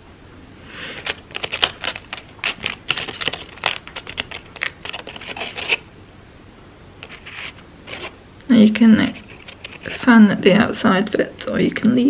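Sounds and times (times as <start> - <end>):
crepe paper crinkling: 1.0 - 5.8, 9.0 - 10.1.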